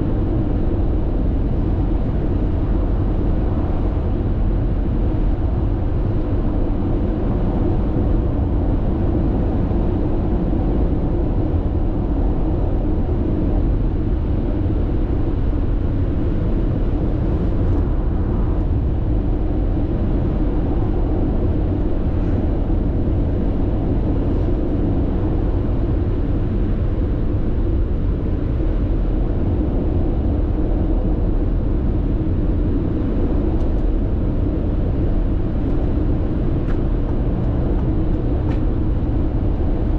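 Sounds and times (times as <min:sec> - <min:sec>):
car road noise inside cabin: 0:00.0 - 0:39.9.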